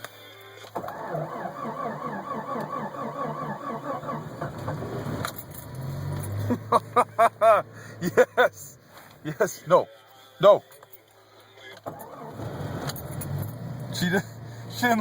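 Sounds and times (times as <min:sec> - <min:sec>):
starter cranking engine: 0:00.8 - 0:05.7
car engine running: 0:00.8 - 0:09.1.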